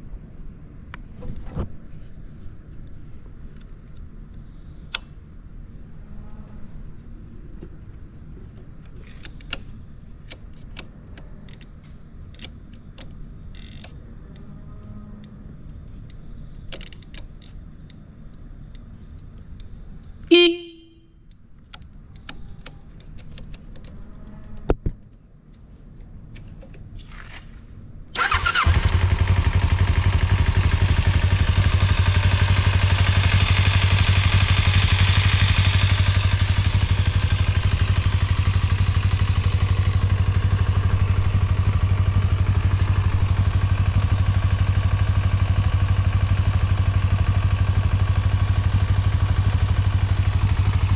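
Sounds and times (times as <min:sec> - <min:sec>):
click: 0:03.6 - 0:05.2, 0:07.6 - 0:20.2, 0:21.3 - 0:25.7
motorcycle horn beep: 0:20.3 - 0:21.2
motorcycle engine starting and idling: 0:28.1 - 0:50.9.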